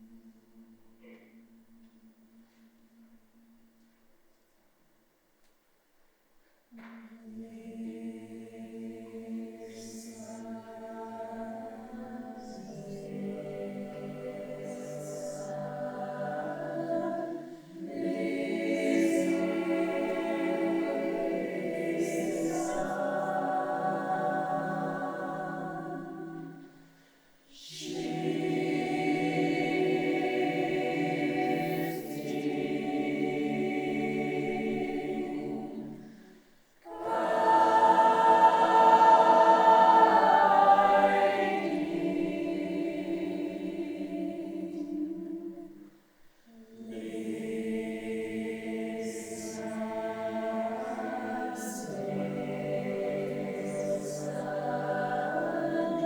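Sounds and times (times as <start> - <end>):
choir singing a cappella: 6.8 - 56.0.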